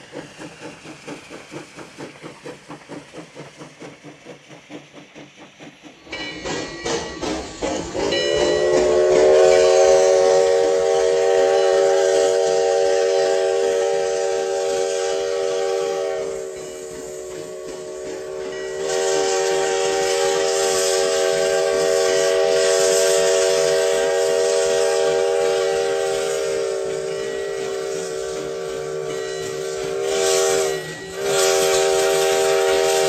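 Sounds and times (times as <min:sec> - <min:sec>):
hissing steam: 0:00.0 - 0:33.0
steam whistle chord: 0:07.2 - 0:33.0.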